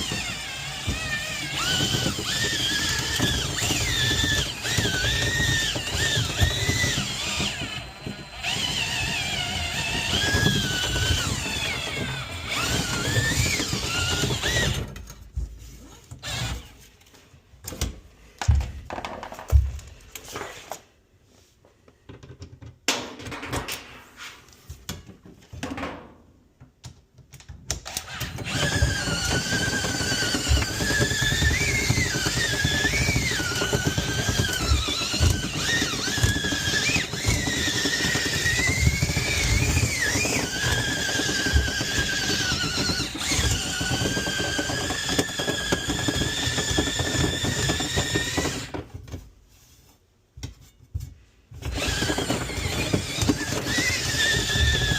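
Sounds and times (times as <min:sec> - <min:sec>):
power tool motor whine: 0:00.0 - 0:15.0, 0:16.2 - 0:16.7, 0:27.9 - 0:48.8, 0:51.7 - 0:54.9.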